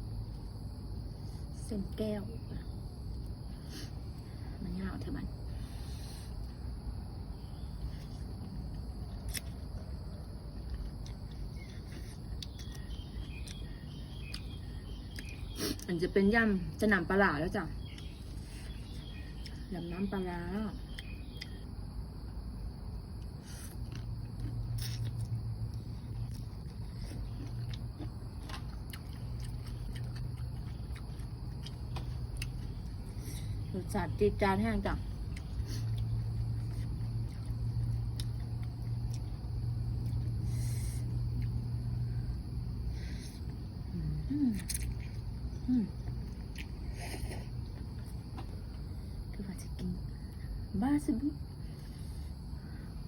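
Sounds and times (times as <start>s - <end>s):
low rumble and hiss: 0.0s - 53.0s
person chewing food: 7.6s - 15.6s, 23.0s - 33.6s, 35.1s - 41.9s, 44.6s - 48.9s.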